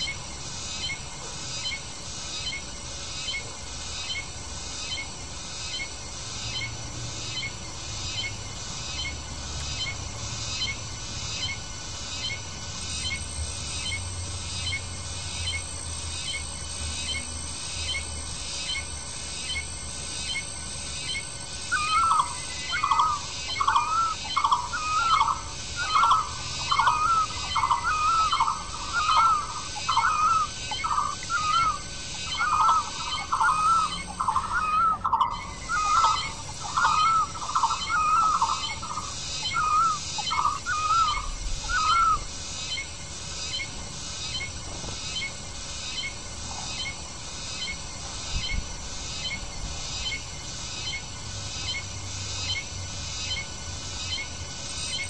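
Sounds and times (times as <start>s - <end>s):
lower bird call: 5.7s - 55.0s
high bird chirp: 20.2s - 44.5s.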